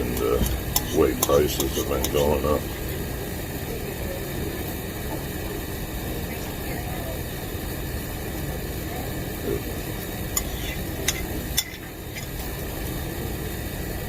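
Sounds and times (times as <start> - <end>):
restaurant background hum: 0.0 - 14.0
cutlery clinking on dishes: 10.4 - 12.4.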